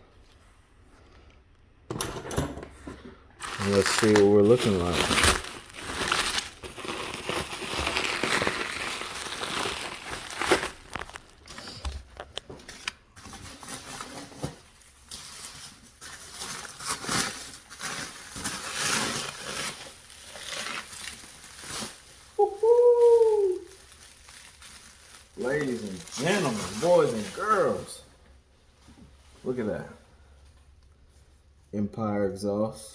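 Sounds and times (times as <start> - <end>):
packaging crinkling and tearing: 3.4 - 28.0.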